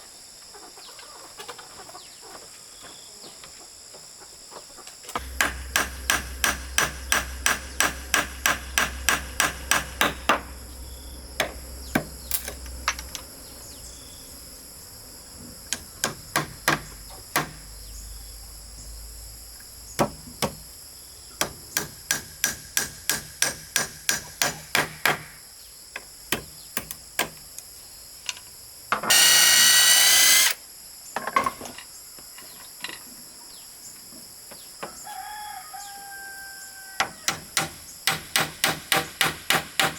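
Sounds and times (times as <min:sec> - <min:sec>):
hammer blows: 0:05.2 - 0:13.2
high insect buzz: 0:05.2 - 0:23.0, 0:29.0 - 0:30.9.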